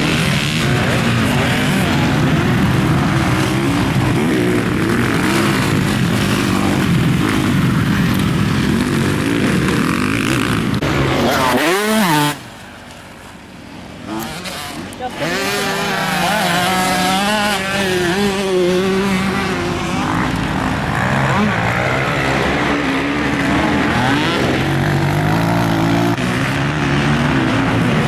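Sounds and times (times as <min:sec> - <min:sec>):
motocross bike engine revving: 0:00.0 - 0:13.2, 0:14.0 - 0:28.0
wind and track noise: 0:00.0 - 0:28.0.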